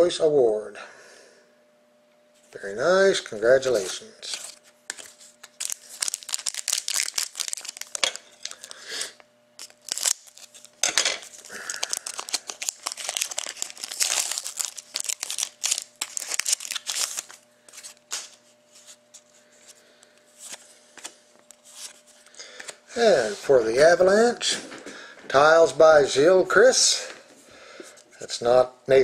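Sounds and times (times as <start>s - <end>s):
cards shuffling: 3.7s - 8.8s, 9.6s - 23.5s
wrapper tearing and crinkling: 4.3s - 8.8s, 9.6s - 18.4s.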